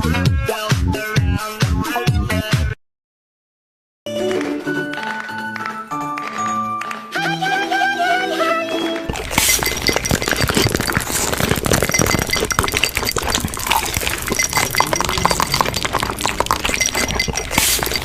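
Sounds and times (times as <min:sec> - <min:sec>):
small hard objects clattering: 0:09.1 - 0:18.0.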